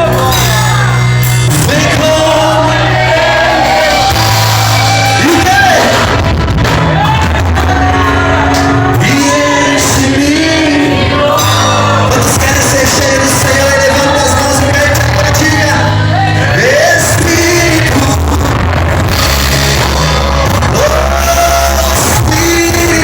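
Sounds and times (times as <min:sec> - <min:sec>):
band playing: 0:00.0 - 0:23.0
held bass notes: 0:00.0 - 0:23.0
person singing: 0:07.1 - 0:23.0.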